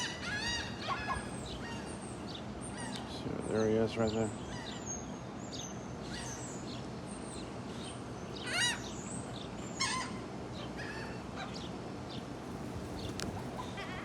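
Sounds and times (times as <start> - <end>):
background hiss: 12.2 - 14.0
gulls calling: 12.2 - 14.0.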